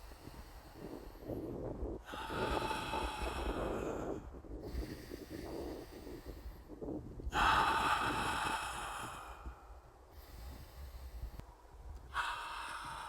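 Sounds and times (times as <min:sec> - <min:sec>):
person breathing deeply: 0:00.0 - 0:13.0.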